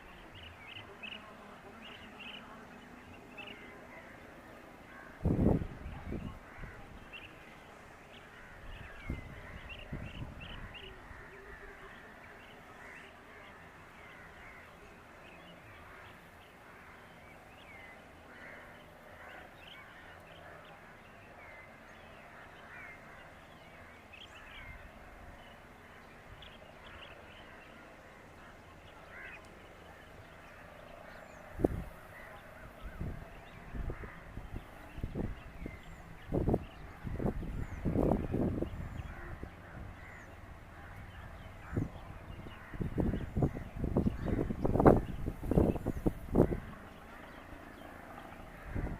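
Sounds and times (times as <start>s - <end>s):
birds chirping and calling: 28.8s - 48.9s.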